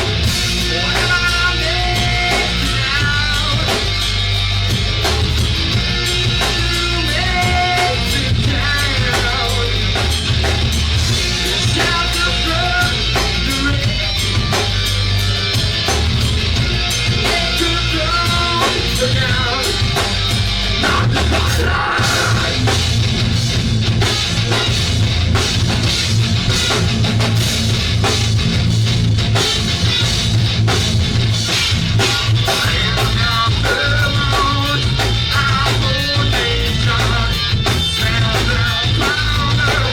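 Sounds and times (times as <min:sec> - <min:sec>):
rock band playing: 0:00.0 - 0:39.9
person singing: 0:00.6 - 0:03.9, 0:06.1 - 0:10.0, 0:11.3 - 0:14.6, 0:17.1 - 0:20.0, 0:20.8 - 0:22.7, 0:32.0 - 0:39.9.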